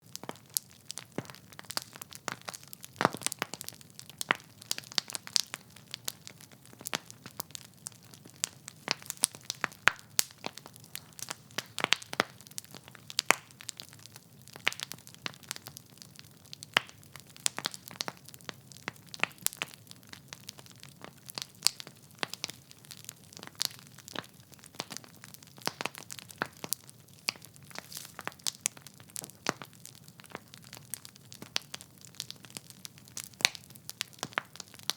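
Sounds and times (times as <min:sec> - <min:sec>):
wood fire crackling: 0:00.0 - 0:34.9
soft hiss of flame: 0:27.7 - 0:28.3.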